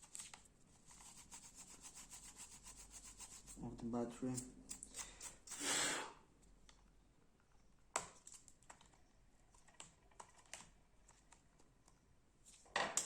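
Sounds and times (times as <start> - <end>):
small clicks handling laptop parts: 7.9 - 11.4.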